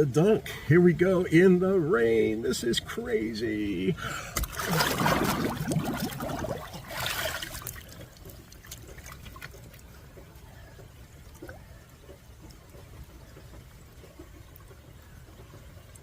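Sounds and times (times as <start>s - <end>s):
rain falling on water: 0.0s - 16.0s
water dripping: 3.9s - 16.0s
water sloshing and splashing: 4.3s - 16.0s.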